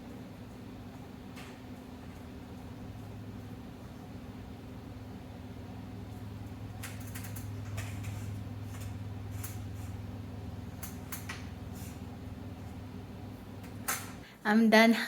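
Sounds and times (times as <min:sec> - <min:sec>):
steady low hum: 0:00.0 - 0:14.5
curtain hardware clicks and scrapes: 0:06.7 - 0:12.8.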